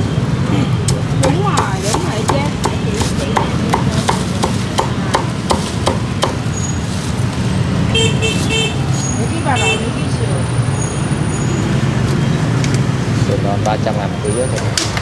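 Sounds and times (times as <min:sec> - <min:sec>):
street traffic: 0:00.0 - 0:15.0
cleaver chopping on wooden block: 0:00.9 - 0:06.5.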